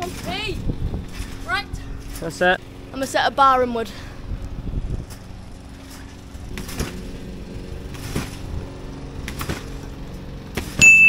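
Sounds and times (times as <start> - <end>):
scooter bouncing on trampoline: 0.0 - 3.5, 4.3 - 11.0
low mechanical hum: 0.0 - 11.0.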